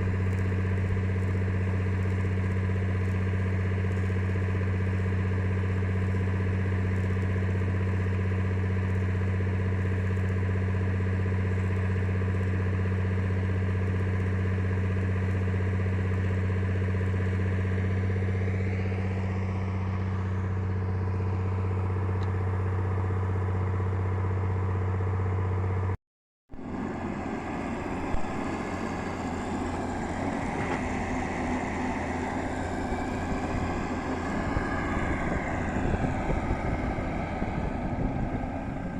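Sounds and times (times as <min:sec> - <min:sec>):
engine humming: 0:00.0 - 0:38.9
rough noisy machine: 0:26.5 - 0:38.9.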